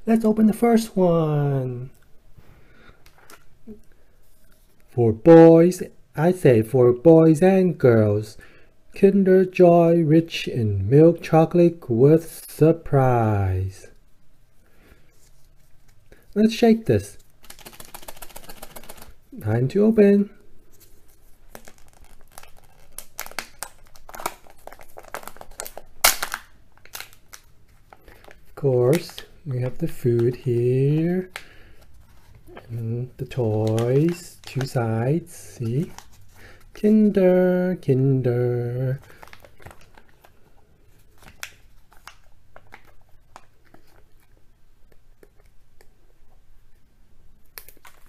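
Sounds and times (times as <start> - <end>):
foil wrapper crinkling: 17.1 - 19.2, 20.8 - 36.8, 38.9 - 44.1.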